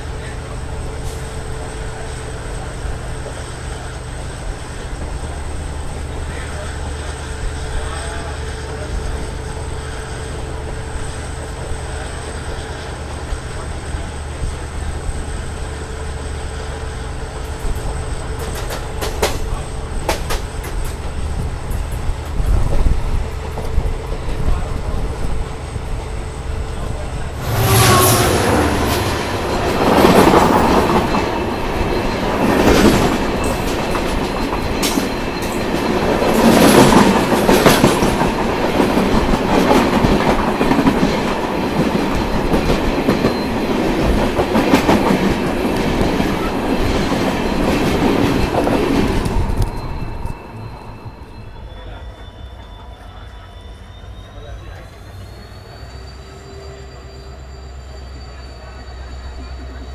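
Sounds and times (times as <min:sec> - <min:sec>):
rushing train clatter: 0:00.0 - 0:59.9
train wheels rumbling on track: 0:00.0 - 0:59.9
wheel squeal: 0:26.7 - 0:36.9, 0:47.6 - 0:59.9.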